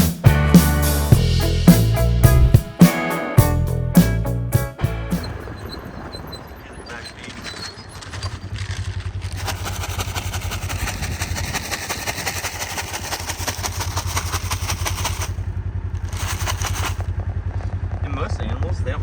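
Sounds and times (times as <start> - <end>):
utility vehicle engine running: 4.8 - 18.6.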